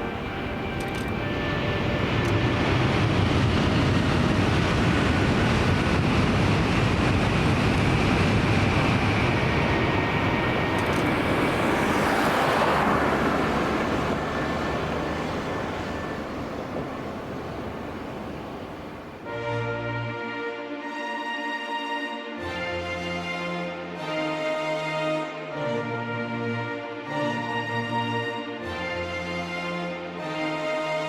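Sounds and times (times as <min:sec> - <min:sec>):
bullet train passing roar: 0:00.0 - 0:19.4.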